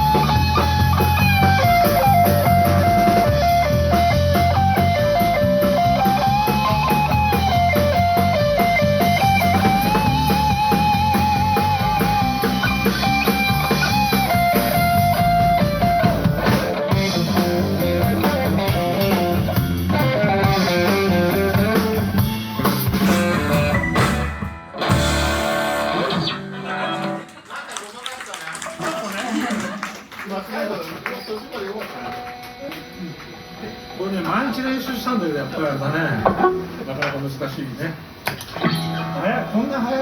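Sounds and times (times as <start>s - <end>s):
electric guitar lead with vibrato: 0.0s - 27.2s, 38.5s - 39.6s
live rock band playing: 0.0s - 27.3s, 31.9s - 35.4s, 38.0s - 40.0s.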